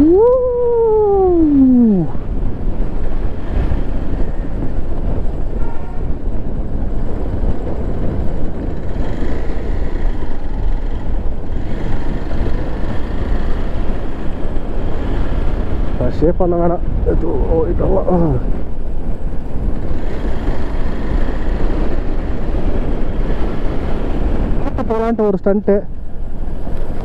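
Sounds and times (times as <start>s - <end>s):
wind buffeting microphone: 0.0s - 27.0s
motorcycle engine running: 2.2s - 16.0s, 18.2s - 25.2s.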